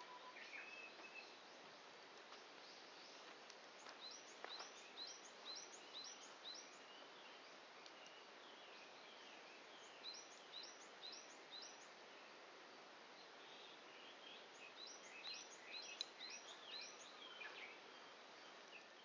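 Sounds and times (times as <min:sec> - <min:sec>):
faint outdoor hiss: 0:00.0 - 0:19.0
campfire crack: 0:01.7 - 0:04.9.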